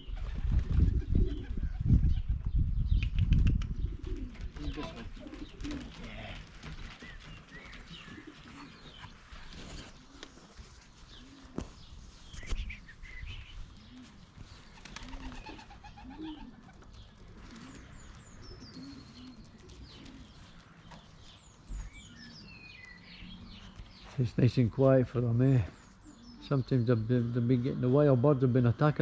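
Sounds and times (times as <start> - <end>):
pigeons cooing: 0.0 - 2.5, 3.4 - 29.0
small birds chirping: 1.0 - 29.0.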